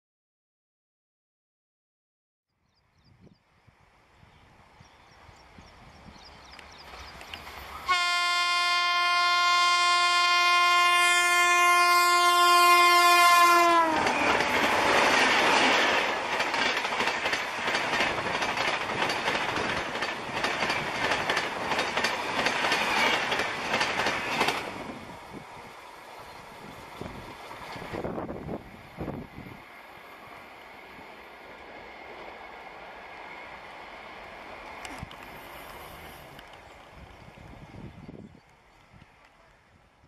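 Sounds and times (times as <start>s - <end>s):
locomotive horn blast: 7.8s - 14.4s
train wheels clacking over rail joints: 13.9s - 24.8s.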